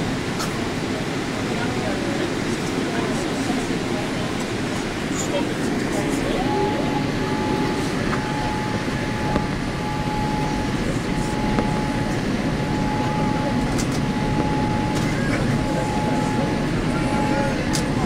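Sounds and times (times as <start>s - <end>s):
airliner cabin roar: 0.0s - 18.0s
thin steady whine: 0.0s - 18.0s.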